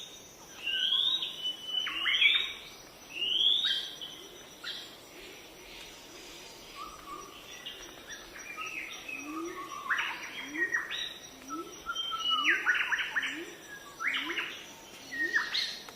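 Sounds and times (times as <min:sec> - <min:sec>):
birds chirping and calling: 0:00.6 - 0:15.8.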